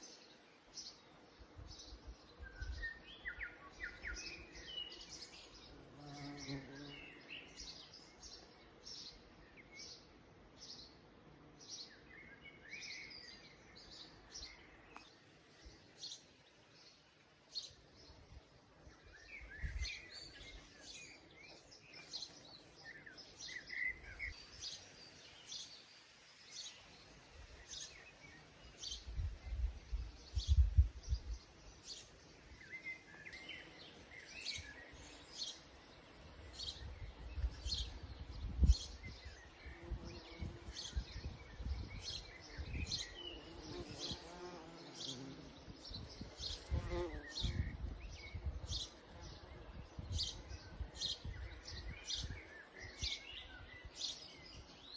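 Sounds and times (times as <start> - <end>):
small birds chirping: 0.0 - 54.9
bumblebee buzzing: 4.2 - 7.7, 42.6 - 47.6.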